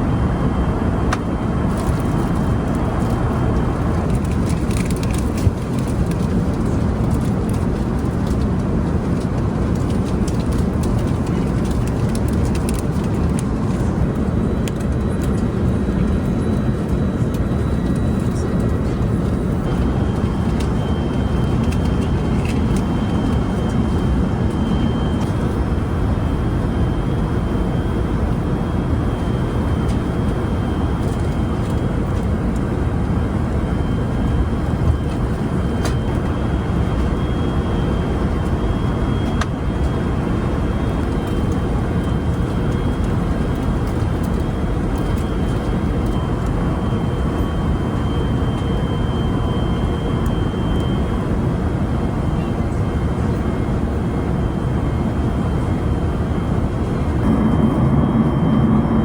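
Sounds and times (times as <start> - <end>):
airliner cabin roar: 0.0 - 59.0
faint high whine: 56.7 - 59.0.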